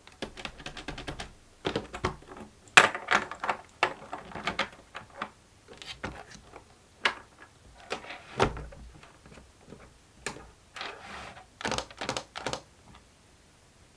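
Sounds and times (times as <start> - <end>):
plastic toy clicks and knocks: 0.1 - 8.0, 11.6 - 12.7.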